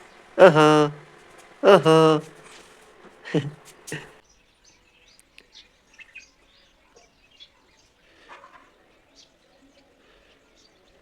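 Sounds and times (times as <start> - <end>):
short voice sound: 0.4 - 2.4, 3.3 - 4.2.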